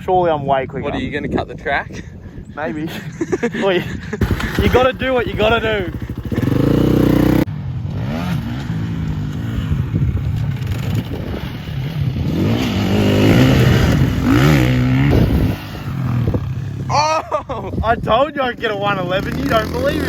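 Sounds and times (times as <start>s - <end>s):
motocross bike engine revving: 4.2s - 17.0s, 18.8s - 20.0s.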